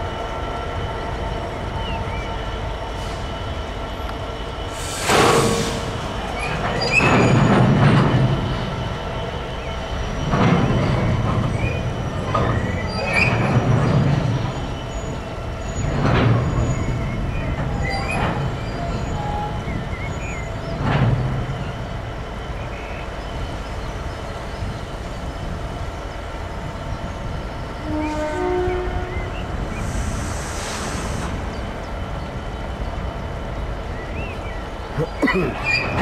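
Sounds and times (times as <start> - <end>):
train rumble: 0.0 - 36.0
train wheel squeals: 0.9 - 32.8, 35.6 - 36.0
wheels clattering over rail joints: 5.0 - 9.0, 9.7 - 22.0.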